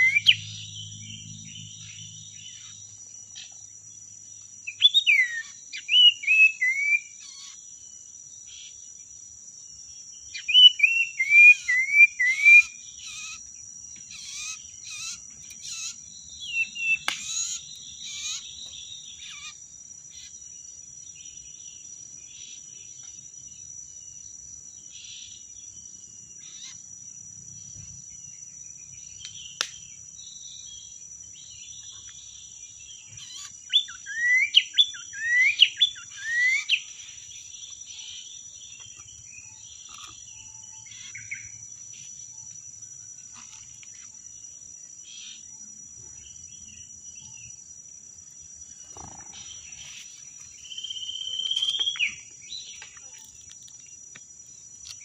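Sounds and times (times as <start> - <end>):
bird calling whistled notes: 0.0 - 0.5, 4.7 - 7.5, 10.4 - 13.4, 33.2 - 36.9, 50.6 - 52.2
high insect drone: 0.0 - 55.0.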